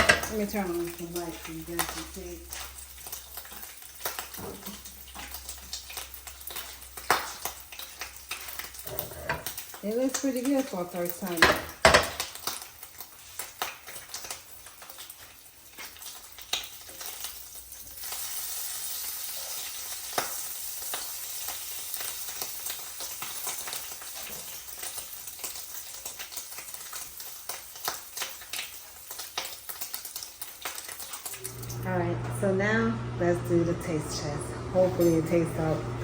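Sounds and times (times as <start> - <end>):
utensils clicking and tapping: 0.0 - 12.5
food sizzling in a pan: 0.0 - 36.0.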